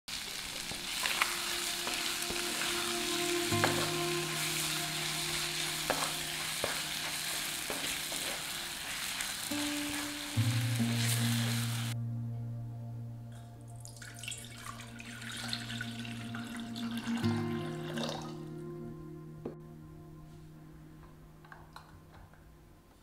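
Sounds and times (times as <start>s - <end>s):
food sizzling in a pan: 0.1s - 12.0s
soft background music: 0.7s - 23.0s.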